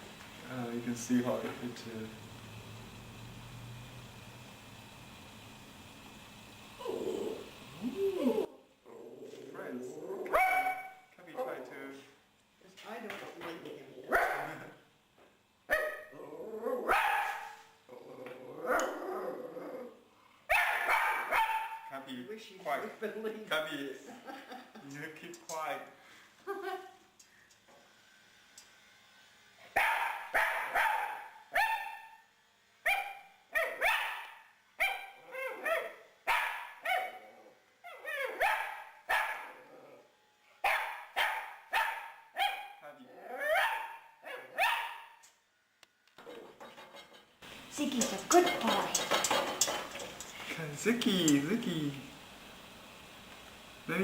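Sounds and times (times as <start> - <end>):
small dog barking: 10.3 - 11.0, 14.1 - 14.7, 15.7 - 16.2, 16.8 - 17.6, 20.5 - 22.0, 29.8 - 32.2, 32.8 - 37.2, 37.9 - 39.6, 40.6 - 42.8, 43.4 - 45.2.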